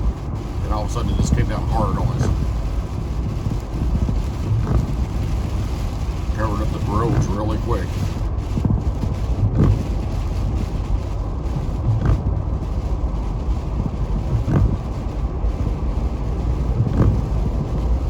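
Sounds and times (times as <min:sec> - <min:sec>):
car engine and tyre rumble: 0:00.0 - 0:18.0
short thumps: 0:01.1 - 0:10.8, 0:11.5 - 0:12.4, 0:13.8 - 0:14.9, 0:16.8 - 0:17.6.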